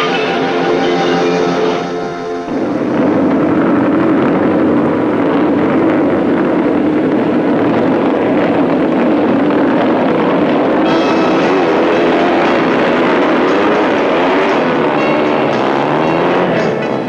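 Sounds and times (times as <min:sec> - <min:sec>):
music: 0:00.0 - 0:04.1, 0:10.8 - 0:17.0
motorcycle engine running: 0:01.8 - 0:17.0.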